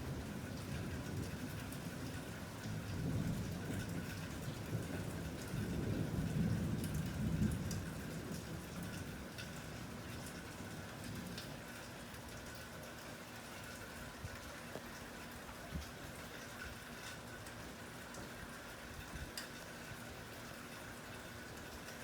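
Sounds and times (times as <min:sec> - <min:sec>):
raindrops ticking close by: 0:00.0 - 0:22.0
steady rain falling: 0:00.0 - 0:22.0
rolling thunder rumble: 0:02.8 - 0:09.0.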